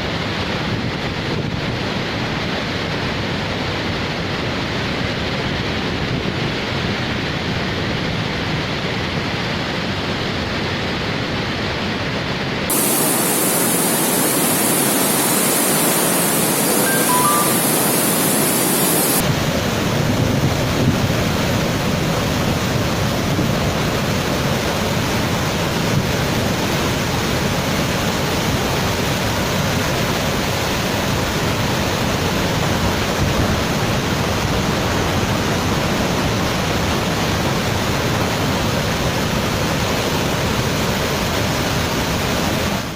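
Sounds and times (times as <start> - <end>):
waterfall rushing: 12.7 - 19.3.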